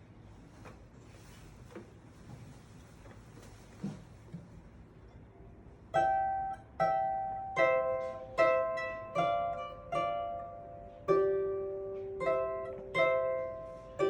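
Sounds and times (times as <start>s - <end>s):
solo instrument slow melody: 5.9s - 14.0s.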